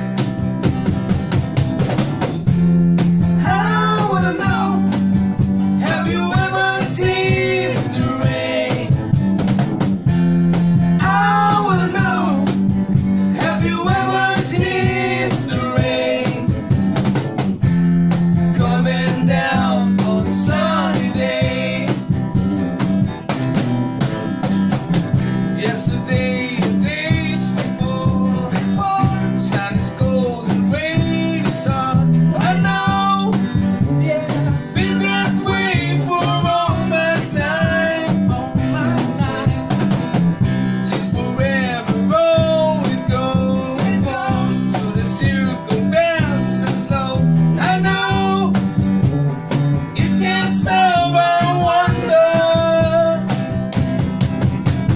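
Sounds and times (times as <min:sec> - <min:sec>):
guitar: 0:00.0 - 0:54.9
person singing: 0:03.4 - 0:04.9, 0:05.8 - 0:09.0, 0:11.0 - 0:12.5, 0:13.4 - 0:16.5, 0:18.6 - 0:22.0, 0:50.0 - 0:53.3.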